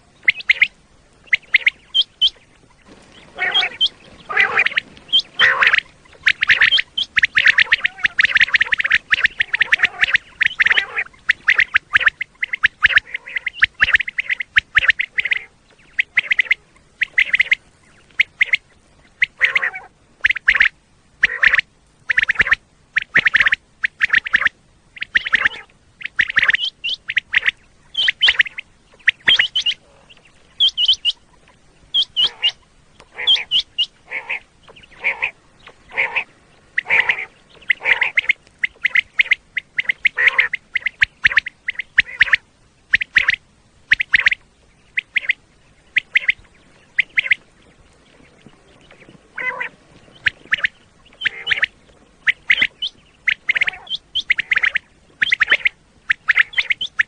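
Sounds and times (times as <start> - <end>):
quail calling: 0.0 - 57.0.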